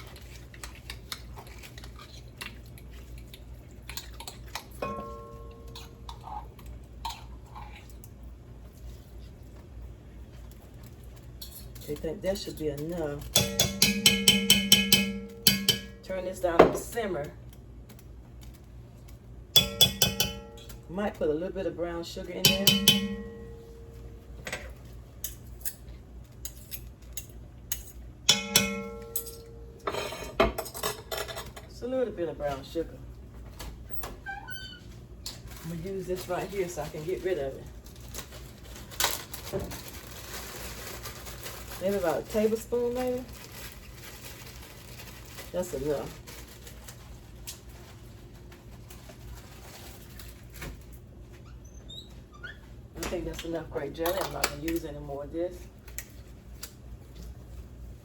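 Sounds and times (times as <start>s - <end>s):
low steady hum: 0.0s - 51.4s
spoon scraping and tapping pot: 13.3s - 16.1s, 19.6s - 20.8s, 22.4s - 24.0s, 27.7s - 30.2s
ringing metal clink: 13.4s - 16.1s, 19.6s - 20.8s, 22.5s - 24.2s, 28.3s - 29.9s.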